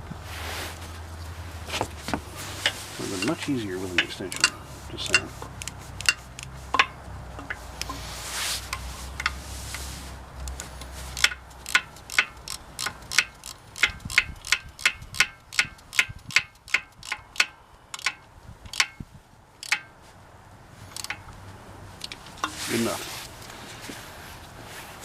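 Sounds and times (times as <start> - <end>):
ratchet wrench clicking: 4.0 - 8.0, 10.5 - 19.0, 19.6 - 19.9, 20.9 - 21.2.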